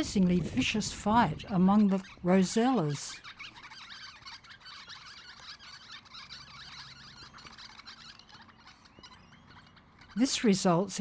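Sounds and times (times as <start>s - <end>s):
parrots chattering: 0.0s - 11.0s.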